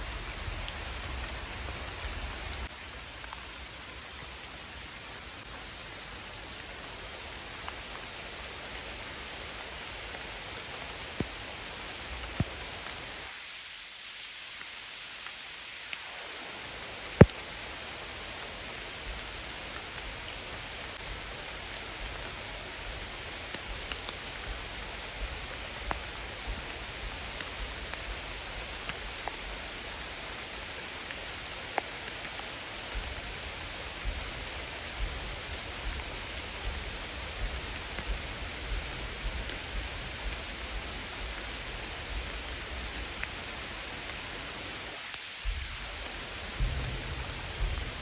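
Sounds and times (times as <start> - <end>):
rain-like hiss: 0.0 - 48.0
small ticks: 20.0 - 30.2, 31.1 - 48.0
low rumble: 45.8 - 48.0.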